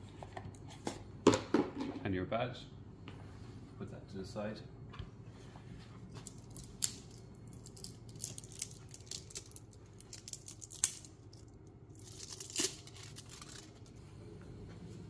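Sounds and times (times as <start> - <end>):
packaging crinkling and tearing: 6.2 - 13.9.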